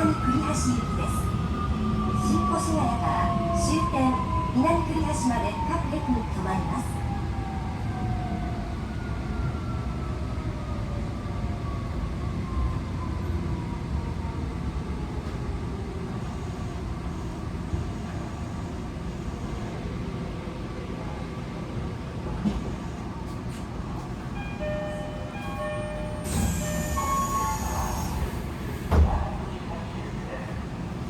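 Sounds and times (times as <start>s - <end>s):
wheels rumbling on rail: 21.1s - 31.0s
train traction motor whine: 24.6s - 29.3s.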